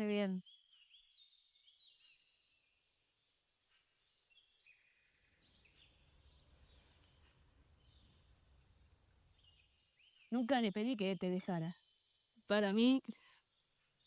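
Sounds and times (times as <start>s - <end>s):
small bird chirps: 0.0s - 14.0s.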